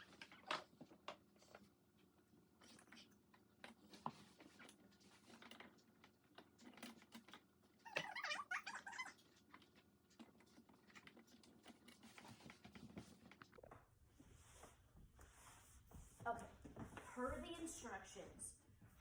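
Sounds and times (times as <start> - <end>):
plastic squeaking: 7.8 - 9.8.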